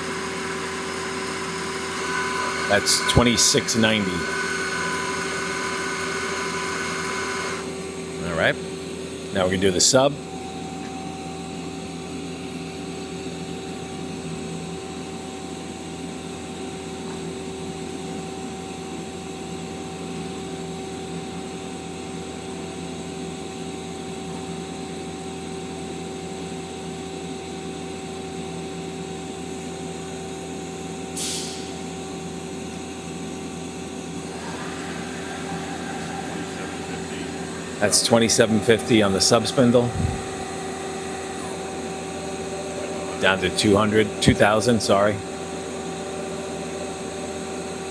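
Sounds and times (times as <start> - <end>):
lathe spindle machine hum: 0.0 - 47.9
brief hiss: 31.2 - 31.8.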